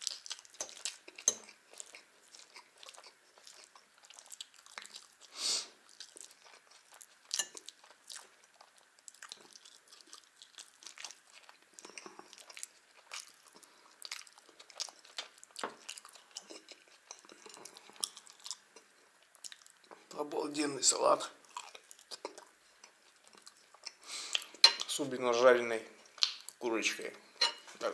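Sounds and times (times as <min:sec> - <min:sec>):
person chewing food: 0:00.0 - 0:20.2, 0:21.4 - 0:24.9, 0:25.9 - 0:26.6
wet mouth smacks and clicks: 0:26.2 - 0:26.6.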